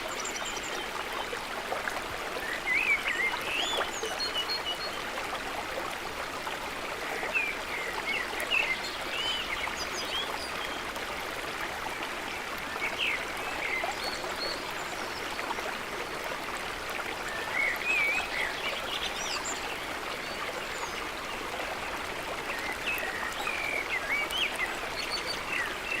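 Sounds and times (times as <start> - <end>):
running water: 0.0 - 26.0.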